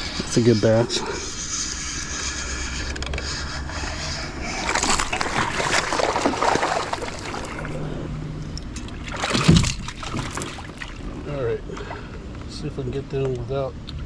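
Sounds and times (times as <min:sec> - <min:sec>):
fish splashing and thrashing: 0:01.3 - 0:11.2
water sloshing: 0:04.0 - 0:11.2.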